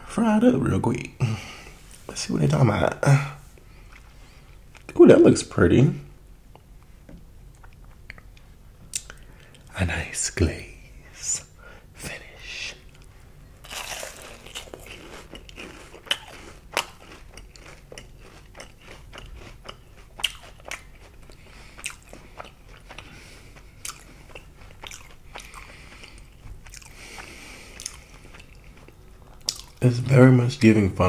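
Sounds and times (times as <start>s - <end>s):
crunchy chewing of fried food: 3.6s - 5.0s, 7.4s - 9.7s, 12.8s - 30.2s.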